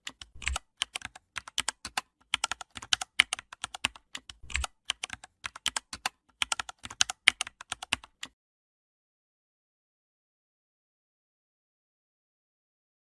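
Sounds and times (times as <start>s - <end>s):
computer keyboard typing: 0.0s - 8.4s.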